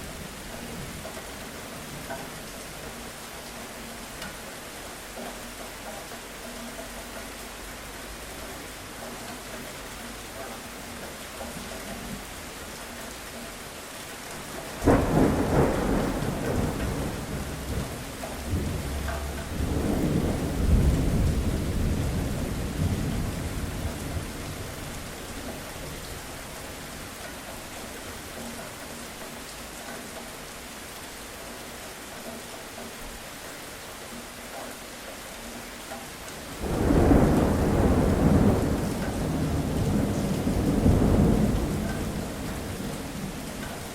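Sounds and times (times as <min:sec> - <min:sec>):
steady rain: 0:00.0 - 0:43.9
thunderclap: 0:14.8 - 0:24.6, 0:36.6 - 0:43.6.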